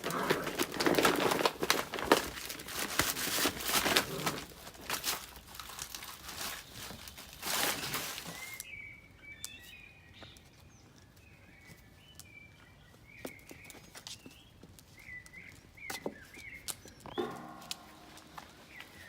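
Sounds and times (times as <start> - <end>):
rustling and scuffling: 0.0 - 8.6, 15.8 - 19.0.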